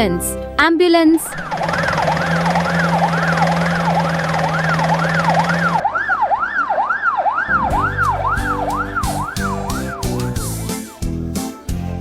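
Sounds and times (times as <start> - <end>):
ambulance siren wailing: 1.3 - 10.6
low rumble: 7.5 - 10.5
music with a beat: 7.7 - 12.0.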